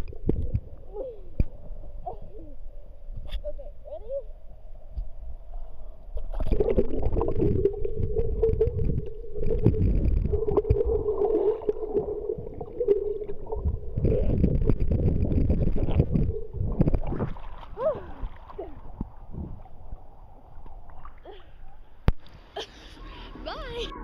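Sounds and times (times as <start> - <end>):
water sloshing: 5.7 - 22.8
wind buffeting microphone: 7.3 - 20.0.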